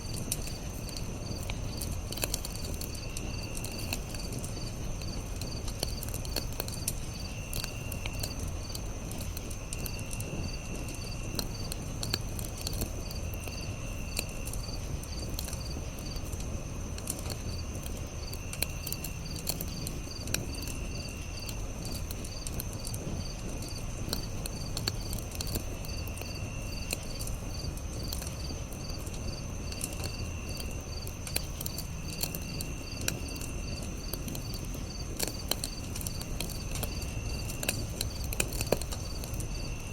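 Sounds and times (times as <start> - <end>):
campfire crackling and popping: 0.0 - 39.9
high cricket trill: 0.0 - 39.9
low insect trill: 0.0 - 39.9
pulsed cricket chirping: 0.0 - 39.9.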